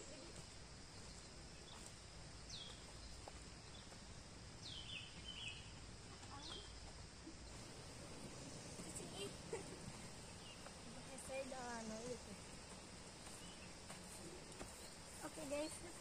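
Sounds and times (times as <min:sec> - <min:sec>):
faint steady hiss: 0:00.0 - 0:16.0
bird chirps: 0:04.6 - 0:06.7, 0:07.4 - 0:12.5.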